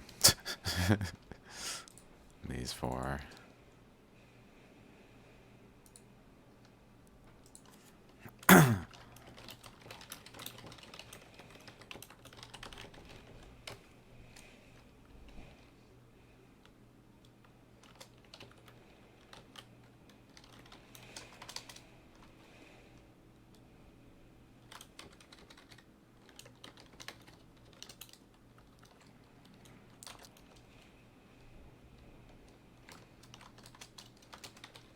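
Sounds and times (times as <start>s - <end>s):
low electrical hum: 0.0s - 34.9s
brief loud vocal sound: 8.5s - 8.8s
computer keyboard typing: 8.9s - 13.8s, 17.8s - 21.8s, 24.6s - 30.6s, 32.9s - 34.9s.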